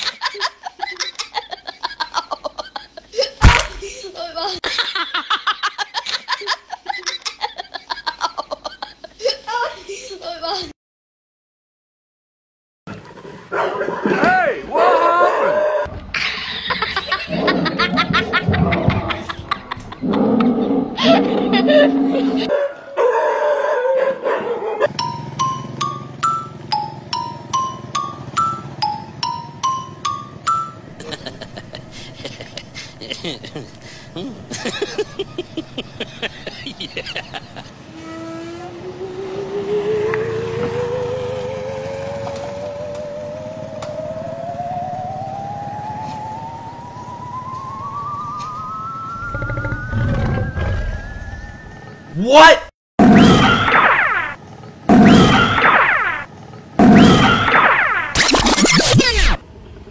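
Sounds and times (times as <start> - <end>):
dog barking: 13.5 - 14.2, 22.5 - 24.9
wavering electronic tone rising: 34.3 - 52.2.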